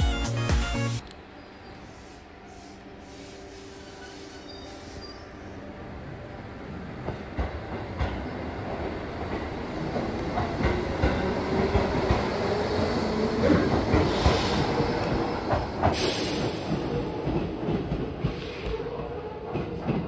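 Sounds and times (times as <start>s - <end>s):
electric train running on rails: 0.0s - 20.0s.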